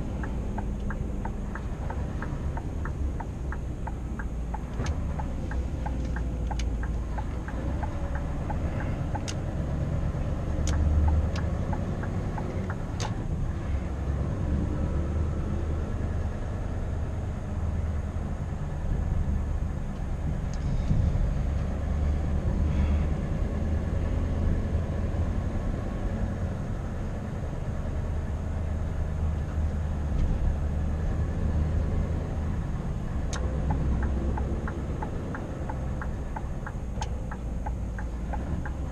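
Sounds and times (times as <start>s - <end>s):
evenly spaced ticking: 0.0s - 9.5s, 10.6s - 13.1s, 33.3s - 38.9s
diesel engine droning: 0.0s - 38.9s
sharp clicks: 0.2s - 9.4s.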